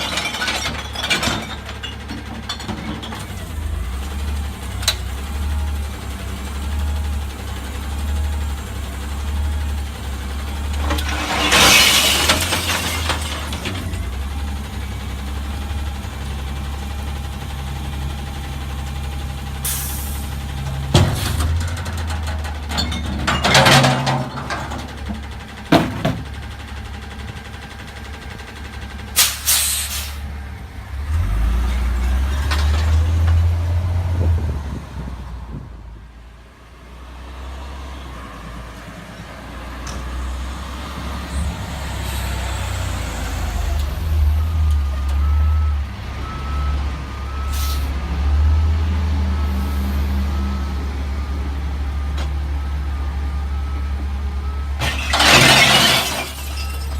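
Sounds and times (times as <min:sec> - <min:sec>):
garbage truck engine: 0:00.0 - 0:56.9
air brake hisses: 0:19.6 - 0:20.3, 0:29.2 - 0:30.2, 0:47.5 - 0:47.9.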